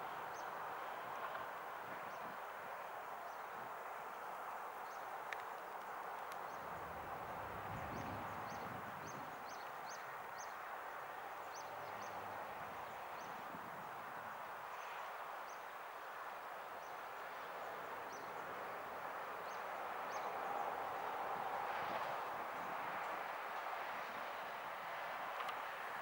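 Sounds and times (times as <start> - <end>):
steady distant hum: 0.0 - 26.0.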